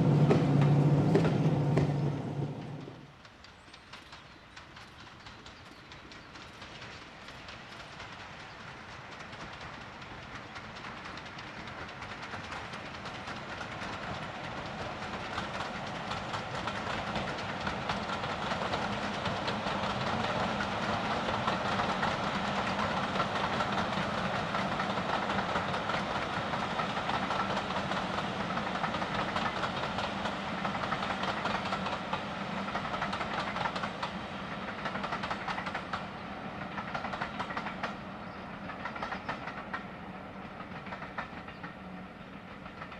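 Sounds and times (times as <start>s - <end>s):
diesel locomotive droning: 0.0s - 3.2s
train passing: 0.0s - 42.9s.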